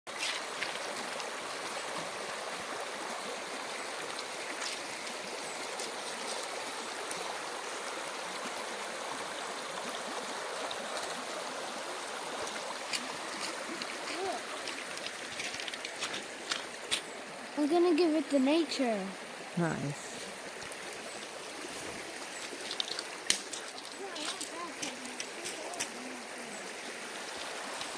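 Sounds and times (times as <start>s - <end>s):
stream rushing: 0.1s - 27.9s.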